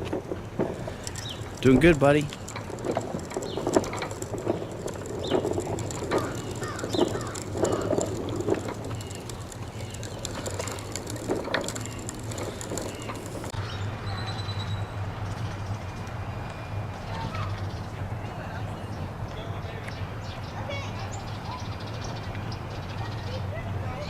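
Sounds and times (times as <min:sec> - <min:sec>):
clicks and rattles: 0:00.0 - 0:13.6
bicycle rolling along path: 0:00.0 - 0:24.0.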